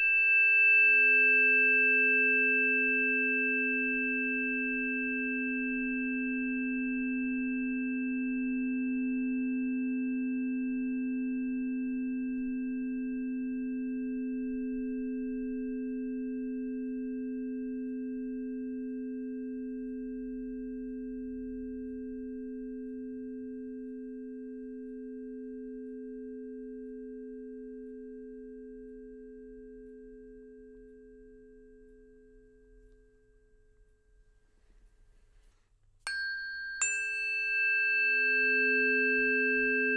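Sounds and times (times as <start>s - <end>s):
struck metal instrument ringing: 36.1s - 39.9s.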